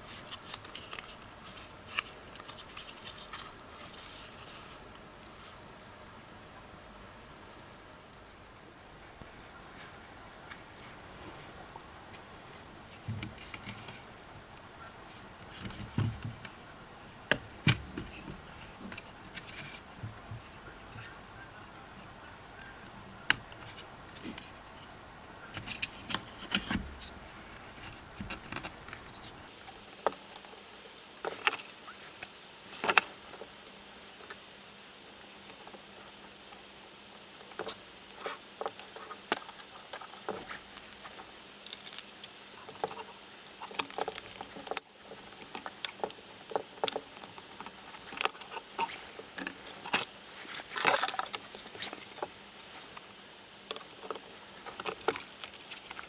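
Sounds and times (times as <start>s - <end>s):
plastic parts clicking and rattling: 28.2s - 56.0s.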